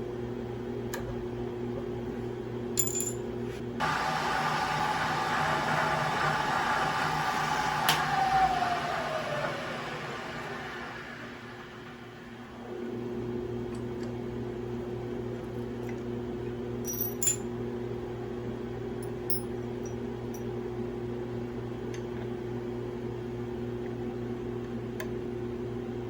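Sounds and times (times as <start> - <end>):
electric motor humming: 3.8 - 12.6.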